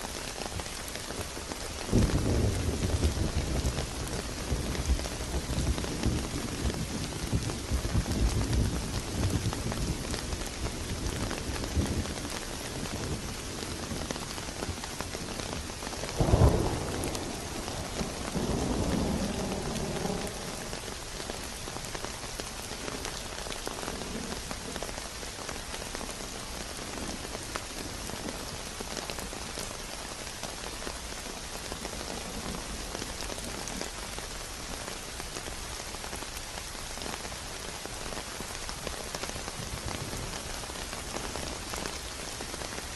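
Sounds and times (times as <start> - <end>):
heavy rain falling: 0.0 - 42.9
thunder clap rumbling: 16.2 - 21.5.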